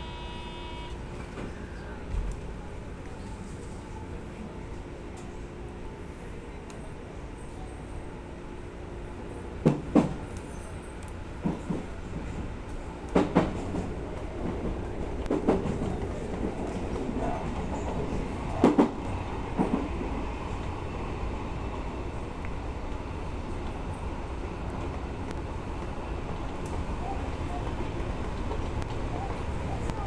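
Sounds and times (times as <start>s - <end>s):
train rumbling on track: 0.0s - 30.0s.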